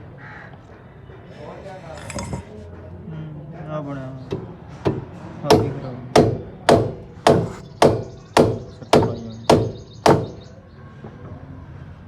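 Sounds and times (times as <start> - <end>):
hammer striking metal: 4.8 - 10.4.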